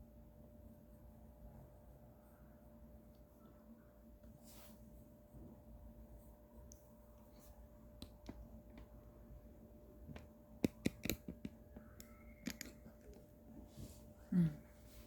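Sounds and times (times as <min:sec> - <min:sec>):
faint room hum: 0:00.0 - 0:15.0
pencil clicks and taps: 0:07.9 - 0:09.0, 0:10.1 - 0:13.3.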